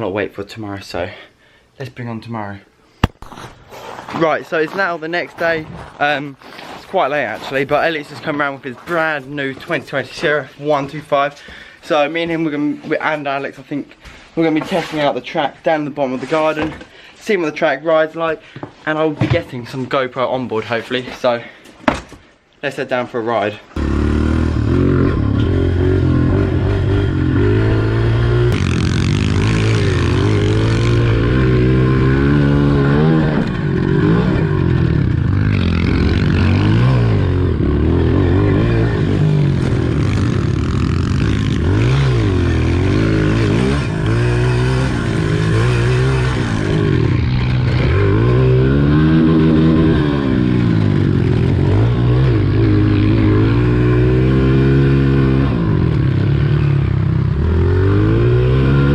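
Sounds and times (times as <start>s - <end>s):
pit bike engine revving: 23.8s - 58.9s.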